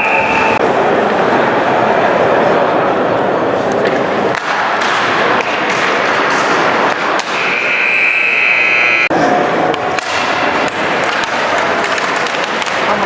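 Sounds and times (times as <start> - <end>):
referee whistle blast: 0.0 - 0.6, 7.3 - 9.1
ice rink crowd din: 0.0 - 13.0
hockey sticks and puck clacking: 3.6 - 9.0, 9.6 - 13.0.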